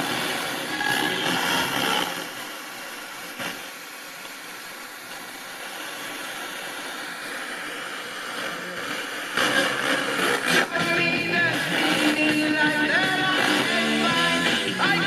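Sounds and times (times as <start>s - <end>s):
radio music: 0.0s - 3.7s, 6.1s - 15.0s
radio static hiss: 0.0s - 15.0s.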